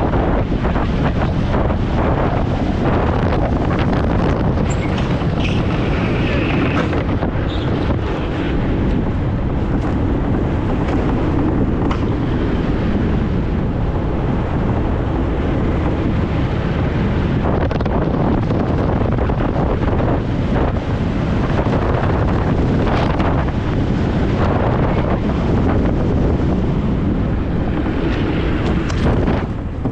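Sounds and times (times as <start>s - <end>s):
low rumble: 0.0s - 29.9s
wind rushing over microphone: 0.0s - 29.9s
knocks and rattles: 3.8s - 8.4s.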